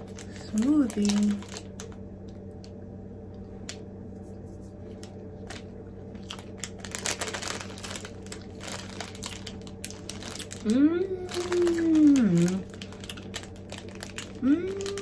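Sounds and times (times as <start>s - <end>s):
chocolate bar crunching: 0.0s - 2.0s, 5.0s - 15.0s
low steady hum: 0.0s - 15.0s.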